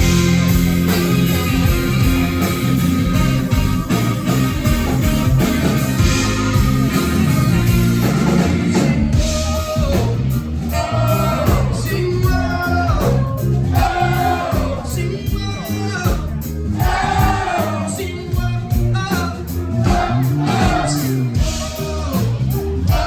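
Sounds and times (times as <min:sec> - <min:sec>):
electric guitar: 0:00.0 - 0:14.7
bass: 0:00.0 - 0:23.0
drum kit: 0:00.0 - 0:23.0.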